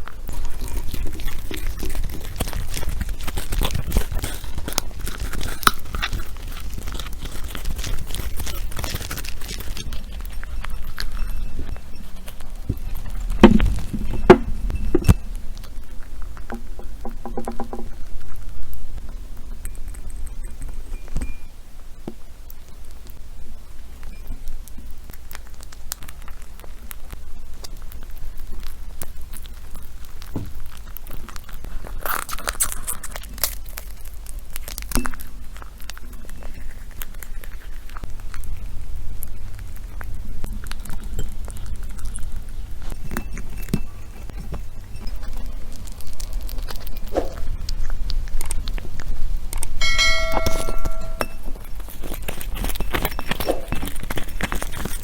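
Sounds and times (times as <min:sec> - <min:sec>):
hamsters gnawing nuts: 0:00.0 - 0:55.0
short metallic ring: 0:49.8 - 0:51.6.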